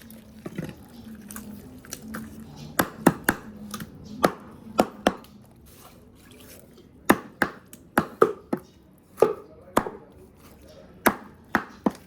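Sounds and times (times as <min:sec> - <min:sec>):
knife chopping chicken: 0:07.1 - 0:10.1, 0:11.0 - 0:12.0.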